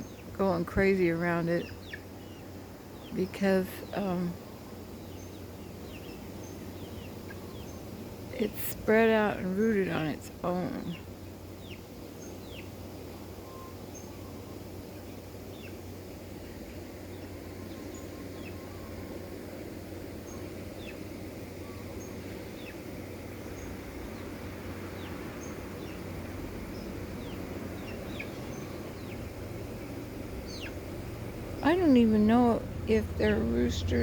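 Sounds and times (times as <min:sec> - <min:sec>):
low background hiss: 0:00.0 - 0:34.0
chicks peeping: 0:30.4 - 0:30.8.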